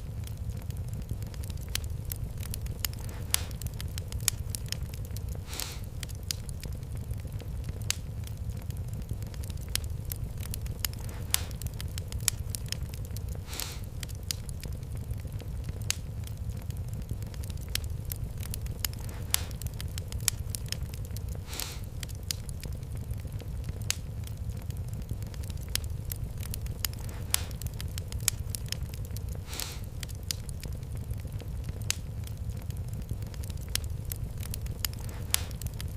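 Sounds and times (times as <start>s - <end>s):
fireplace fire crackling: 0.0s - 35.9s
short hiss: 5.4s - 5.8s, 13.4s - 13.9s, 21.4s - 21.9s, 29.4s - 29.9s.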